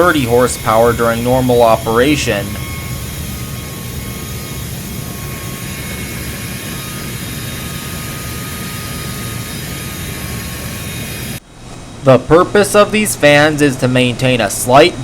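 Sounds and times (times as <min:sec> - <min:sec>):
high-pitched turbine whine: 0:00.0 - 0:15.0
low machinery noise: 0:00.0 - 0:15.0.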